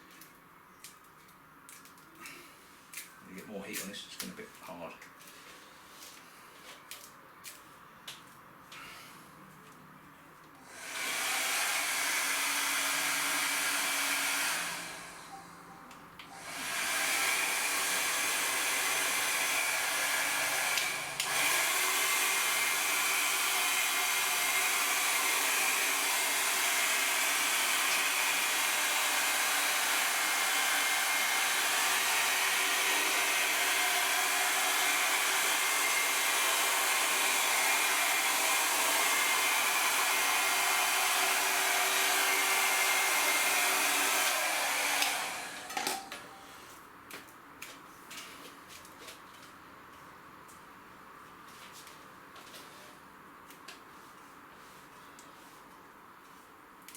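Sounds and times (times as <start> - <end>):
heat gun blowing hiss: 10.6 - 15.4, 16.3 - 46.5.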